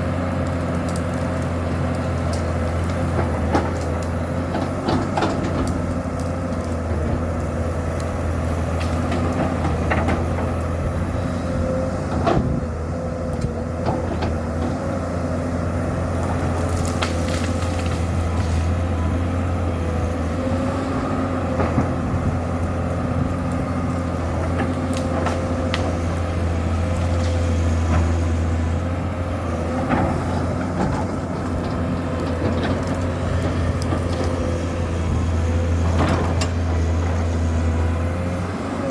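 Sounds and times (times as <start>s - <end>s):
excavator diesel engine running: 0.0s - 38.9s
sharp knocks and cracks: 0.4s - 10.7s, 16.1s - 18.7s, 24.4s - 26.3s.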